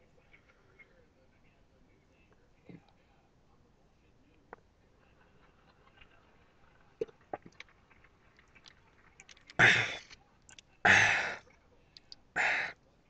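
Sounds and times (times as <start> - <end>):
man gasping for breath: 10.9 - 11.4, 12.4 - 12.8.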